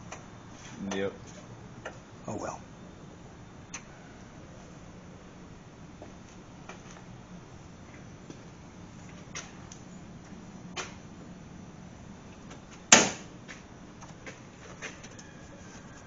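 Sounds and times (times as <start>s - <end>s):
loud sharp knock: 12.9s - 13.3s.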